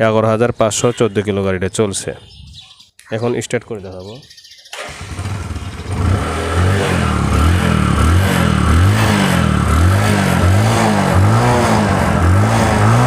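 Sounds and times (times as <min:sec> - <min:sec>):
motorcycle engine revving: 0:04.7 - 0:13.0.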